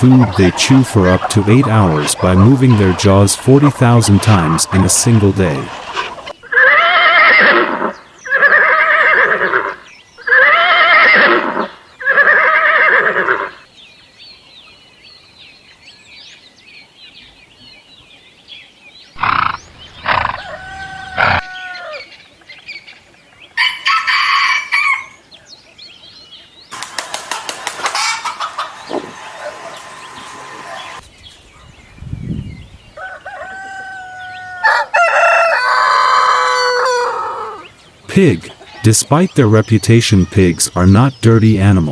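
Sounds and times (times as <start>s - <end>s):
farm animal calls: 0.0s - 13.7s, 19.1s - 31.7s, 32.9s - 41.9s
faint bird chirping: 13.5s - 24.0s, 24.6s - 26.8s, 28.5s - 34.8s.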